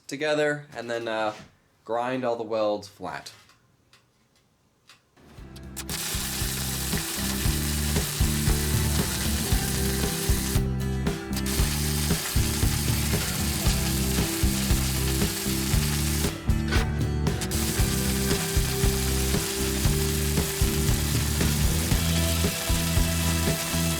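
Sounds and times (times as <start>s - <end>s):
welder crackling and buzzing: 5.7s - 23.9s.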